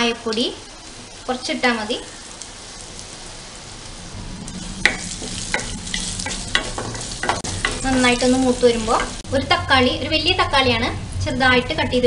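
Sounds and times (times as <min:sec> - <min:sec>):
spices sizzling in hot oil: 0:00.0 - 0:12.0
wooden spatula scraping pan: 0:04.9 - 0:09.2.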